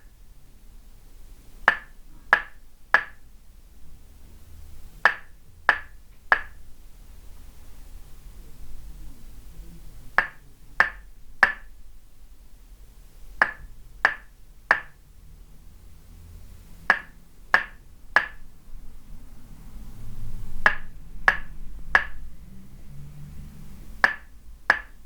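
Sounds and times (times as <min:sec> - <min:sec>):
wooden mallet knocking on peg: 0:01.7 - 0:03.2, 0:05.0 - 0:06.6, 0:10.2 - 0:11.7, 0:13.4 - 0:15.0, 0:16.9 - 0:18.4, 0:20.7 - 0:22.2, 0:24.0 - 0:25.0.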